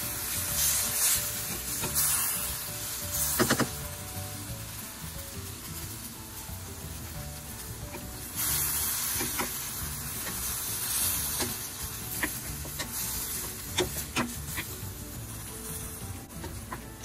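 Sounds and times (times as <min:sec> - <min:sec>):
meat and vegetables sizzling: 0:00.0 - 0:17.0
spatula clicking against pan: 0:09.1 - 0:10.6, 0:11.2 - 0:14.8.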